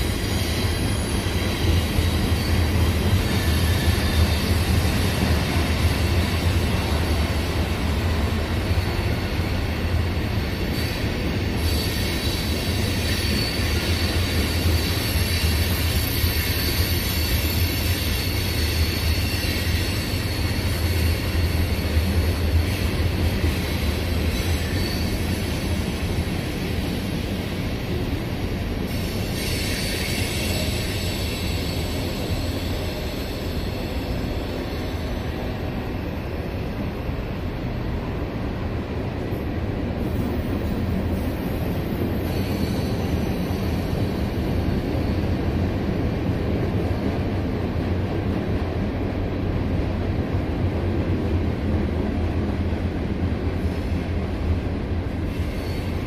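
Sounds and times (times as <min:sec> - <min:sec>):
train wheels rumbling on rail: 0:00.0 - 0:56.0
high wheel squeal: 0:08.8 - 0:25.9, 0:28.9 - 0:35.3, 0:41.6 - 0:45.6, 0:55.3 - 0:56.0.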